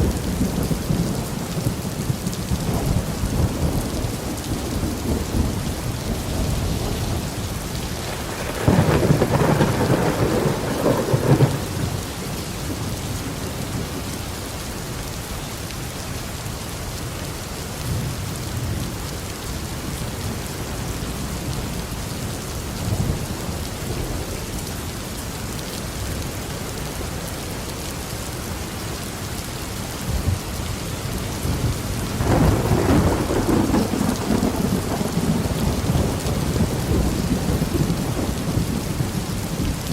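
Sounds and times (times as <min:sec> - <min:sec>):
thunder rumbling: 0:00.0 - 0:14.0, 0:30.1 - 0:39.9
steady rain: 0:00.0 - 0:39.9.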